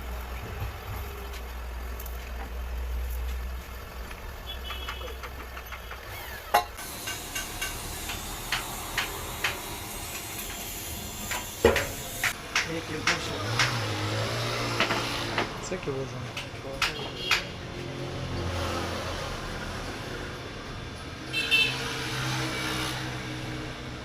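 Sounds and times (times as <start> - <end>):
motorcycle engine rumbling: 0.0 - 6.8.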